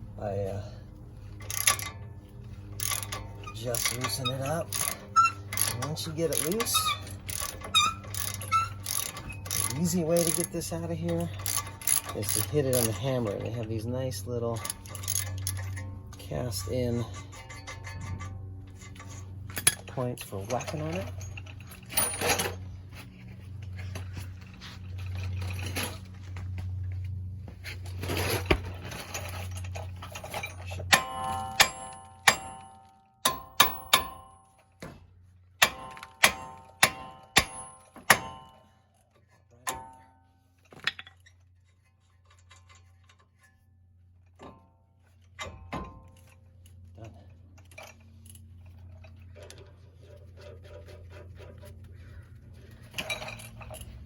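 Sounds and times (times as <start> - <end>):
hammer striking metal: 30.9 - 34.5, 35.6 - 38.7.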